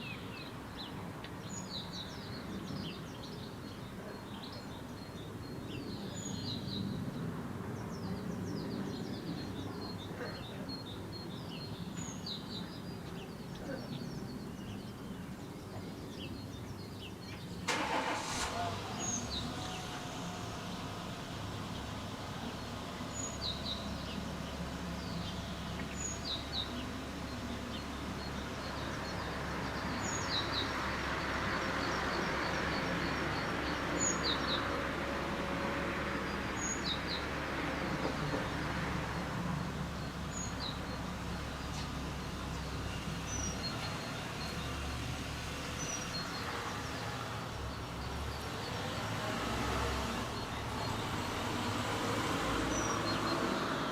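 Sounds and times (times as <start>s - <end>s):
background traffic noise: 0.0s - 53.9s
vehicle passing: 17.6s - 53.9s.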